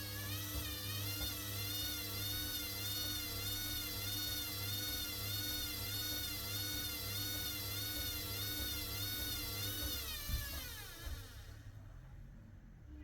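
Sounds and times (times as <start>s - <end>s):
washer-dryer drum motor whining: 0.0s - 12.0s
thump: 10.2s - 11.2s.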